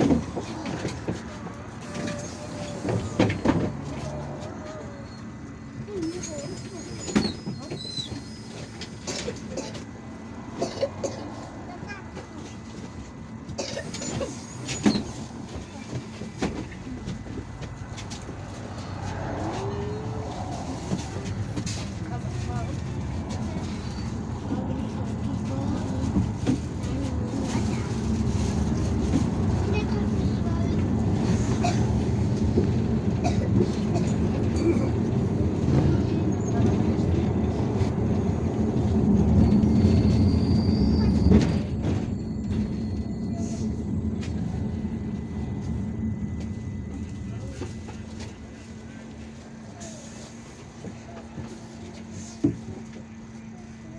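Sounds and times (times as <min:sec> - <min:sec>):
bus engine and road rumble: 0:00.0 - 0:53.9.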